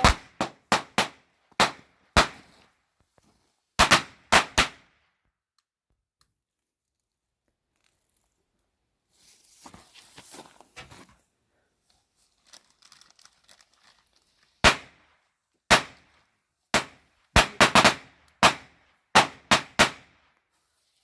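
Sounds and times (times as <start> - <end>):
fireworks bangs: 0.0 - 2.6, 16.8 - 20.0.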